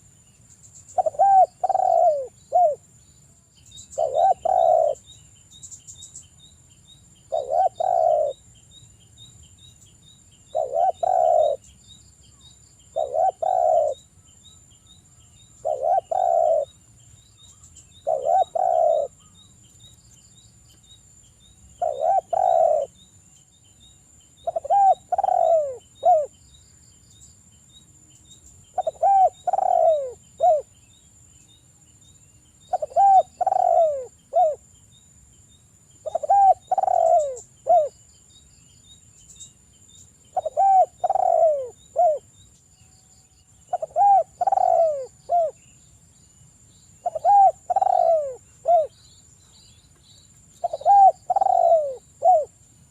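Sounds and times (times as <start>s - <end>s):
dove cooing: 0.9s - 2.8s, 4.0s - 5.0s, 7.3s - 8.4s, 10.5s - 11.7s, 12.9s - 14.1s, 15.6s - 16.8s, 18.0s - 19.3s, 21.8s - 23.0s, 24.4s - 26.3s, 28.7s - 30.7s, 32.7s - 34.6s, 36.0s - 37.9s, 40.3s - 42.3s, 43.7s - 45.6s, 47.0s - 49.0s, 50.6s - 52.6s.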